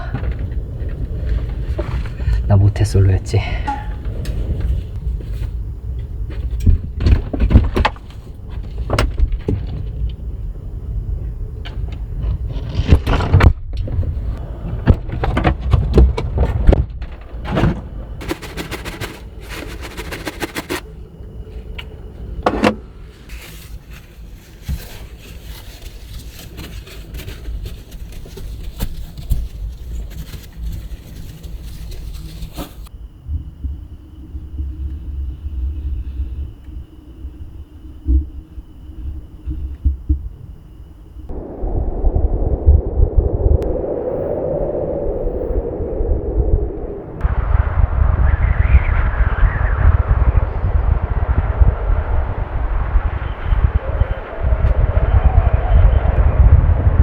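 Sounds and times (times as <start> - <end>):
wind buffeting microphone: 0.0 - 25.2, 32.2 - 57.0
knocks and rattles: 14.8 - 20.8
wind-driven snow hissing: 41.3 - 57.0.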